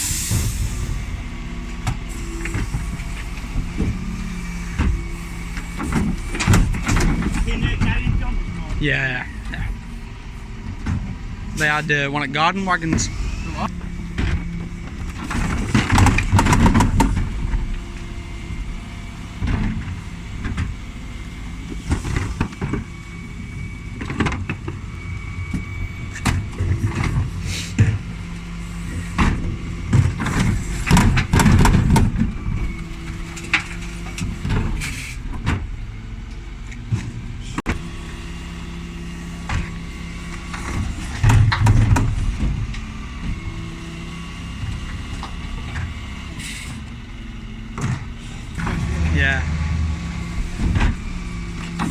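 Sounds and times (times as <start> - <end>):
lorry diesel engine running: 0.0 - 51.9
bins knocking and clattering: 14.1 - 17.7, 29.1 - 37.8.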